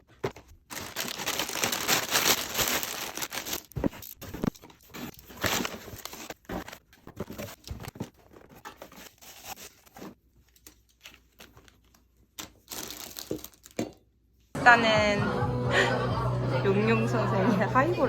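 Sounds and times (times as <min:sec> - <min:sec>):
packaging crinkling and tearing: 0:00.1 - 0:13.8.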